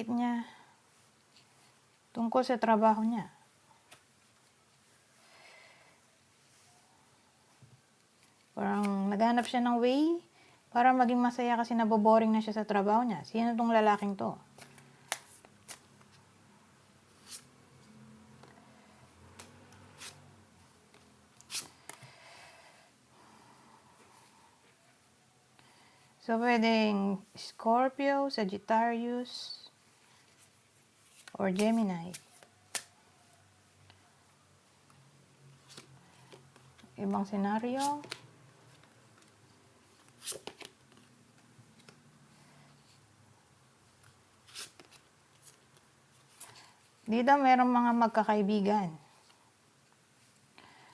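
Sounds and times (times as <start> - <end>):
faint room hum: 0.0 - 50.9
cards clicking and rustling: 14.5 - 16.2, 31.1 - 32.9, 40.0 - 42.1, 44.5 - 46.5
cards rustling and slapping down: 40.1 - 41.1.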